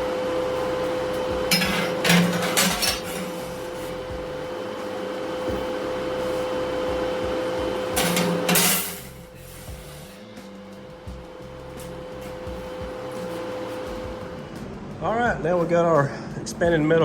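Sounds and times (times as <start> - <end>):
power tool cutting metal: 0.0 - 10.3.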